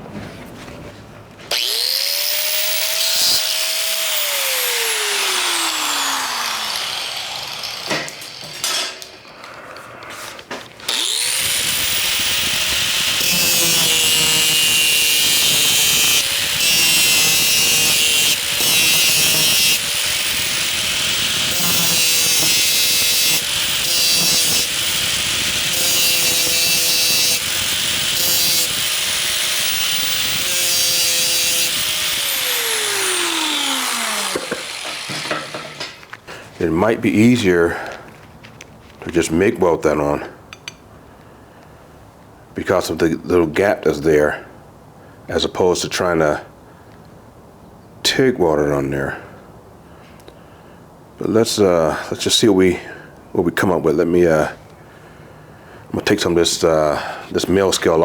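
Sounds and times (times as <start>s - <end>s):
angle grinder cutting steel: 1.5s - 9.4s, 10.9s - 36.1s.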